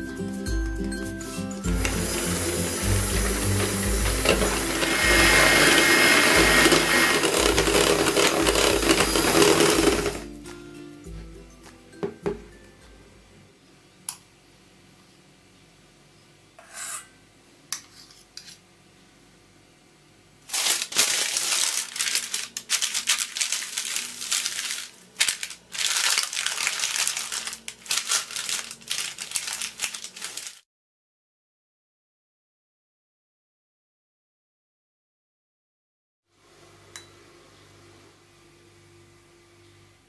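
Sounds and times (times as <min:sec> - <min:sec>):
baking paper and plastic wrap crinkling: 0:01.8 - 0:10.3, 0:20.4 - 0:30.6.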